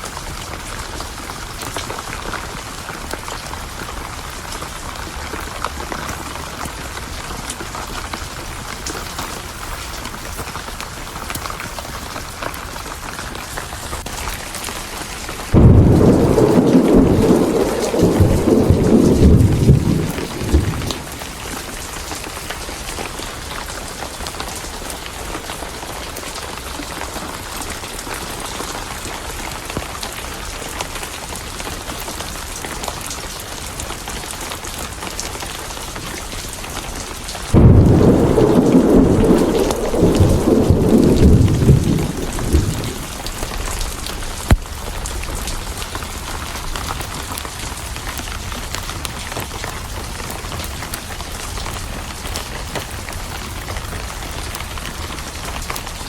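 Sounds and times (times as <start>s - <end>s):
steady rain: 0.0s - 56.0s
thunder rumbling: 14.2s - 22.2s, 37.5s - 45.4s
sharp crack: 15.5s - 21.4s, 37.6s - 44.8s.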